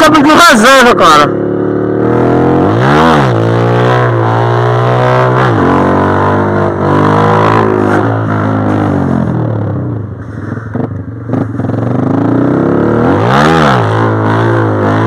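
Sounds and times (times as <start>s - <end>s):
small motorcycle engine revving: 1.3s - 9.2s.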